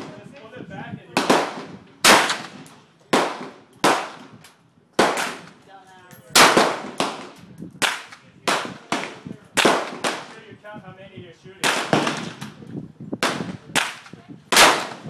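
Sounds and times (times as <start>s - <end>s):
rifle shots with ringing tail: 1.2s - 2.6s, 5.0s - 5.5s, 6.3s - 10.3s, 11.6s - 12.5s, 13.2s - 15.0s.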